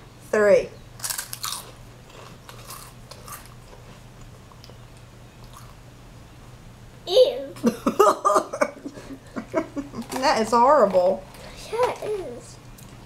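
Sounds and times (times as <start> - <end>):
potato chips crunching: 1.0 - 3.8
chewing: 1.0 - 5.8.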